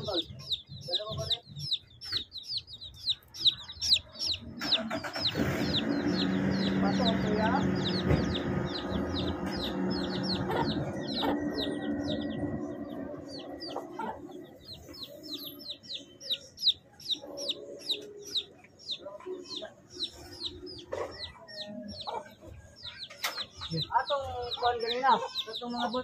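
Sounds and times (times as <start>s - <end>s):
chicks peeping: 0.0s - 26.0s
low hum: 5.3s - 15.2s.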